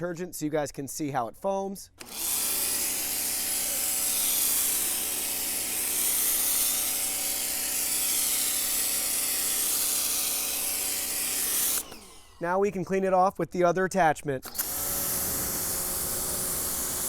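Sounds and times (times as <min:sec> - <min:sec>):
pressure washer motor hum: 0:02.0 - 0:12.5, 0:14.4 - 0:17.0.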